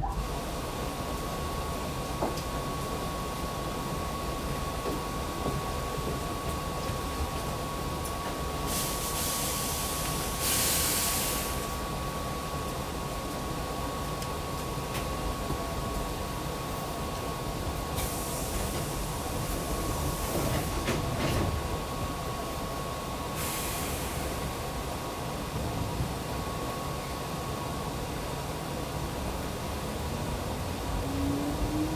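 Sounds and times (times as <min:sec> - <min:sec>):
train rumble: 0:00.0 - 0:31.9
hiss: 0:08.6 - 0:11.8, 0:18.0 - 0:21.1, 0:23.4 - 0:24.5.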